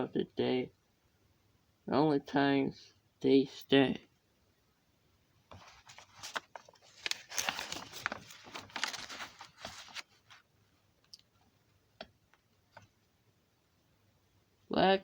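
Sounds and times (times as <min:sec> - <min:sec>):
crackling handling noise: 0:05.5 - 0:11.6.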